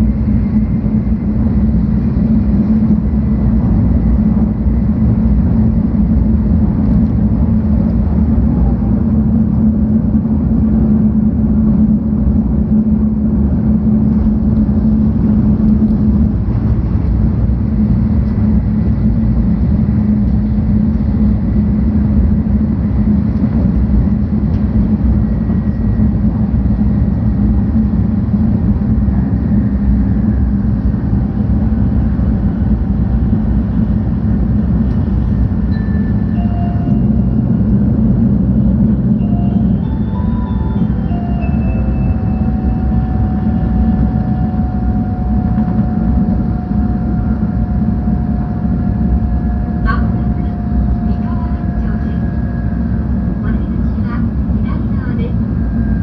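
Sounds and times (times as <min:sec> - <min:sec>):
train cabin running rumble: 0:00.0 - 0:56.0
faint high whine: 0:35.6 - 0:37.7.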